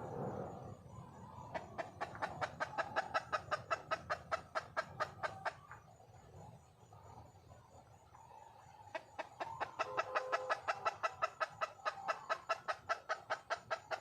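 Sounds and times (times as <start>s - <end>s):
hen clucking: 1.2s - 5.9s, 8.9s - 14.0s.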